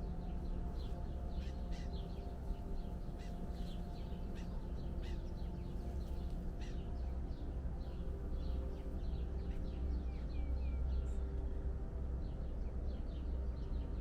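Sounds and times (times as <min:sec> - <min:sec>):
birds chirping and calling: 0:00.6 - 0:09.8.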